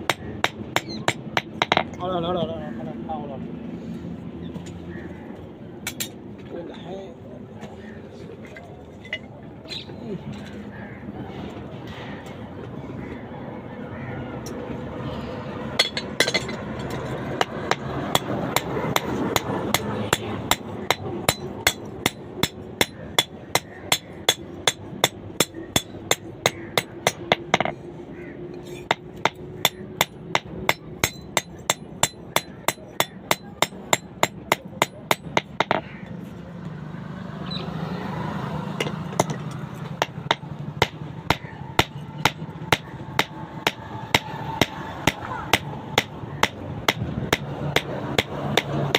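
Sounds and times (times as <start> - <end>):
hammer striking steel rod: 15.8 - 27.7, 28.8 - 35.8, 38.8 - 48.9.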